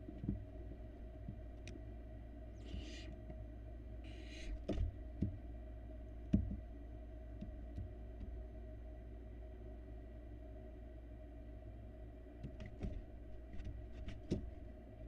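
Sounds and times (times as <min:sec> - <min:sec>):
steady electrical hum: 0:00.0 - 0:15.0
owl chicks hissing screech calls: 0:02.6 - 0:03.2, 0:04.0 - 0:04.6.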